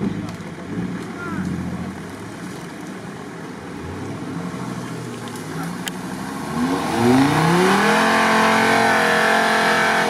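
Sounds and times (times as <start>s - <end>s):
off-road vehicle engine revving: 3.7s - 10.0s.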